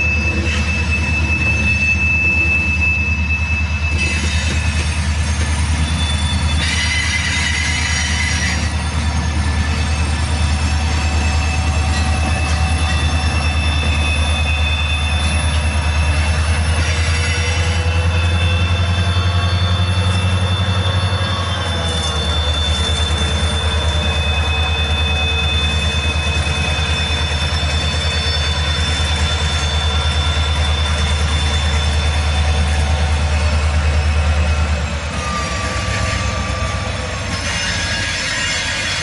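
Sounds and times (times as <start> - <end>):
high-pitched wheel squeal: 0.0 - 39.0
train and diesel locomotive rumble: 0.0 - 39.0.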